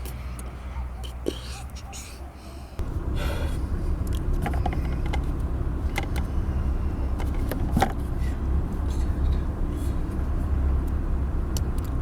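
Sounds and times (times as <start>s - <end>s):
vehicle engine running: 2.8s - 12.0s.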